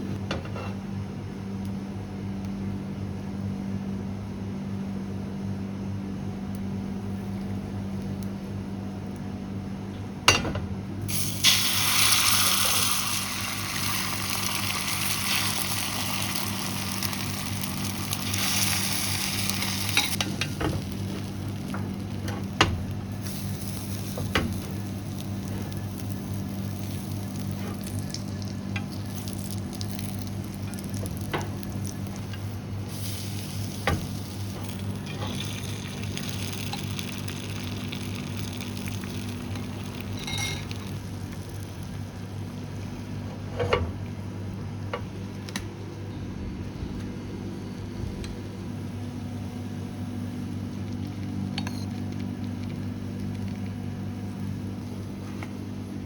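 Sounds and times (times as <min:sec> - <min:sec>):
low kitchen hum: 0:00.0 - 0:56.0
egg sizzling in a pan: 0:11.1 - 0:42.2.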